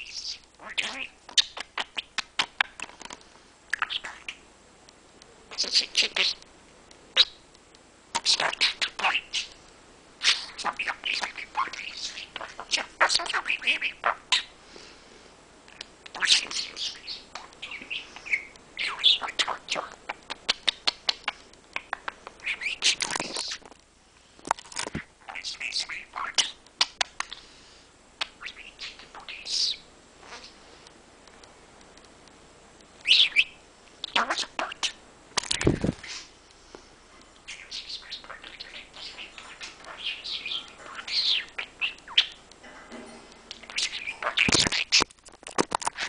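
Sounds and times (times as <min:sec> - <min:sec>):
budgerigar chirping and warbling: 0:00.0 - 0:02.1, 0:05.5 - 0:06.4, 0:08.2 - 0:09.5, 0:10.2 - 0:14.5, 0:16.1 - 0:21.2, 0:33.0 - 0:35.0, 0:37.5 - 0:42.4, 0:43.6 - 0:45.1.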